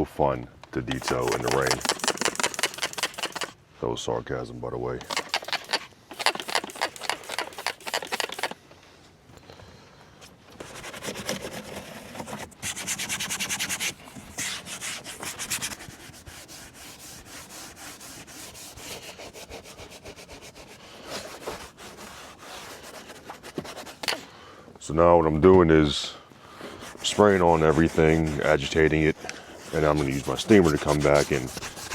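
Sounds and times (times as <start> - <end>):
brush scrubbing back and forth: 0.9 - 3.5, 5.0 - 8.6, 10.6 - 24.3, 26.5 - 31.9.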